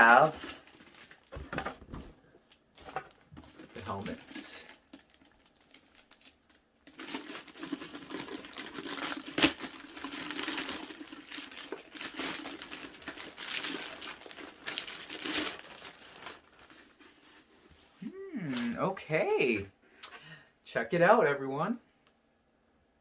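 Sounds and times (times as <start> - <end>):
packaging crinkling: 0.0 - 1.8, 2.5 - 17.5.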